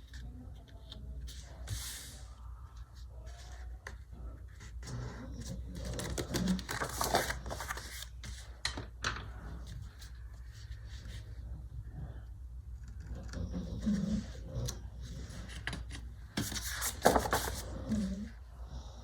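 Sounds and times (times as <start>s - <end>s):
paper rustling: 0.0s - 8.8s, 13.8s - 18.3s.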